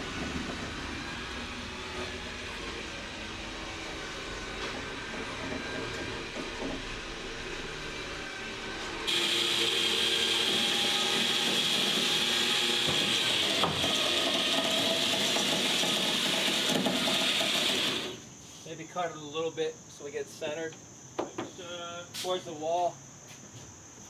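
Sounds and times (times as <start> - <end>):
truck wheels grinding on floor: 3.8 - 18.3.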